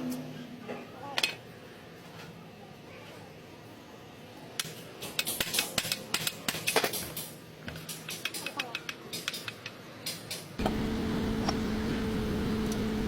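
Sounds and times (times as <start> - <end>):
metallic clicks and taps: 4.6 - 10.5.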